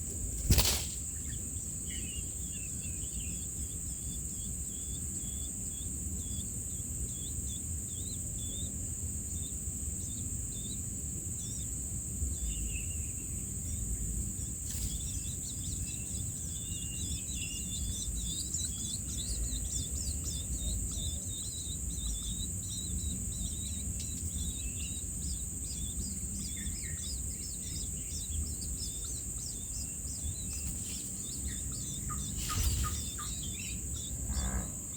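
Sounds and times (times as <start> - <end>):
birds chirping: 0.0 - 34.9
high insect buzz: 0.2 - 2.2, 14.4 - 34.9
low rumble: 32.8 - 34.9.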